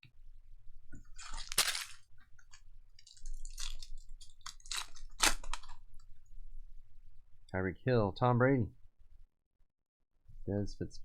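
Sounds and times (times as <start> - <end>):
card packaging crinkling: 1.1 - 5.8.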